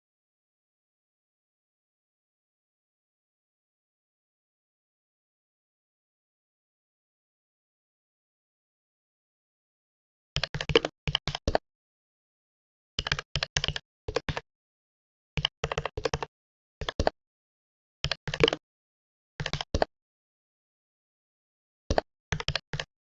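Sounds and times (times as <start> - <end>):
computer keyboard typing: 10.4 - 11.6, 13.0 - 14.4, 15.4 - 17.1, 18.0 - 18.6, 19.4 - 19.9, 21.9 - 22.9.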